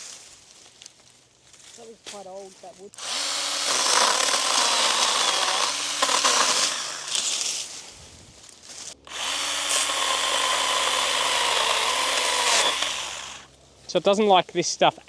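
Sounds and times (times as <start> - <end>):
chainsaw cutting branches: 3.0 - 13.6.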